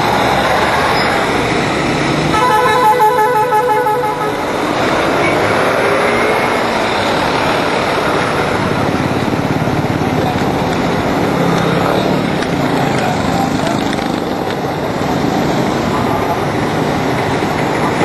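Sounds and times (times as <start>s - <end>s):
motorcycle engine: 0.0s - 18.0s
traffic: 0.0s - 18.0s
vehicle horn pulses: 2.3s - 4.4s.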